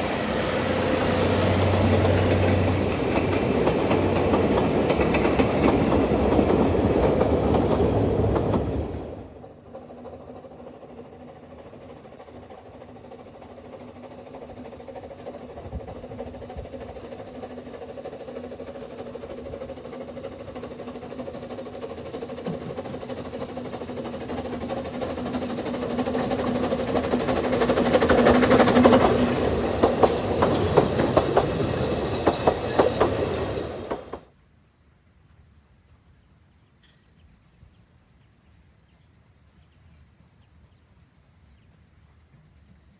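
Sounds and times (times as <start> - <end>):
train passing: 0.0 - 34.3
wheels clicking over rail joints: 2.2 - 8.7, 9.7 - 34.3.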